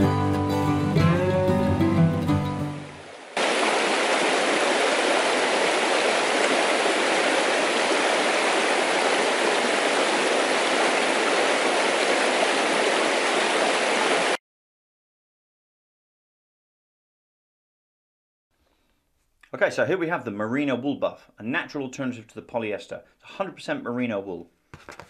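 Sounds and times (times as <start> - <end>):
stream rushing over cascade: 2.5 - 14.4.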